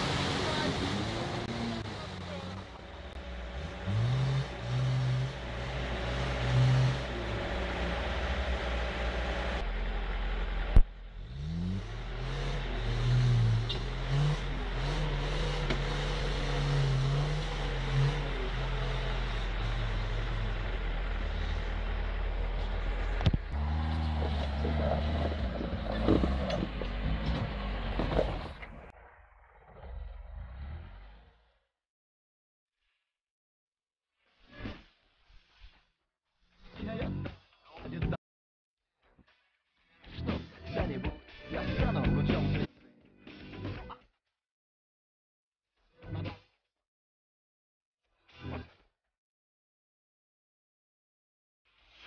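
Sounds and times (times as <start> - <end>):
engine revving hard: 0.0 - 9.6, 11.2 - 22.4, 23.5 - 28.2.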